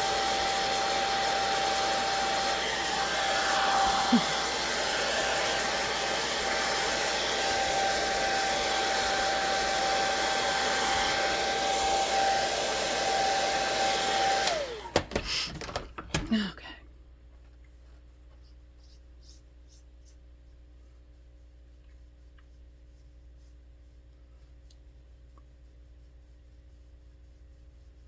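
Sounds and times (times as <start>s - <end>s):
hair dryer blowing: 0.0s - 15.4s.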